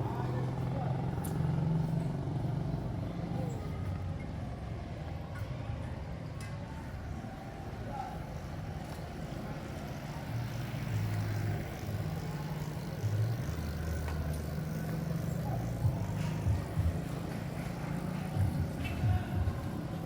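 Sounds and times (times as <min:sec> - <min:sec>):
vehicle engine running: 0:11.9 - 0:20.0.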